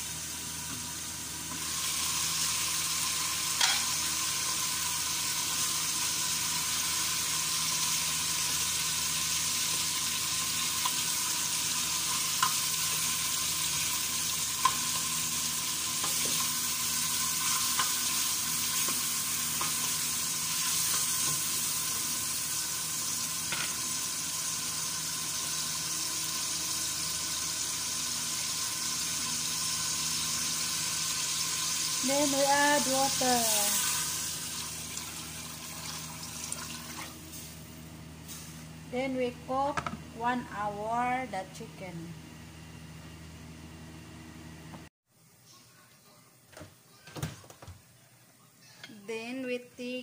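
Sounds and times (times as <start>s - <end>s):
chicken sizzling in oil: 0.0s - 38.8s.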